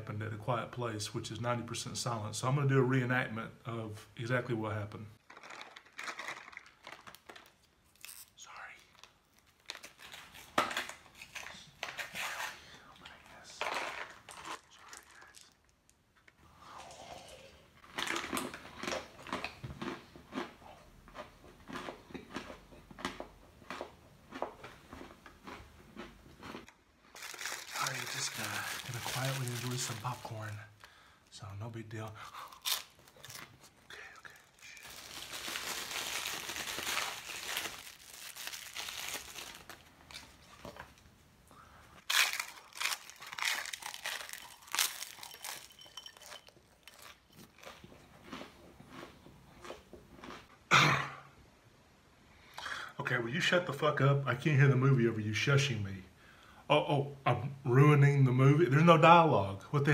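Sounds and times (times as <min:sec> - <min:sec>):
packaging crinkling: 0:05.2 - 0:12.2, 0:27.1 - 0:31.0, 0:32.4 - 0:41.0, 0:42.1 - 0:47.6
person chewing popcorn: 0:13.0 - 0:15.8, 0:17.8 - 0:30.9, 0:42.0 - 0:50.5.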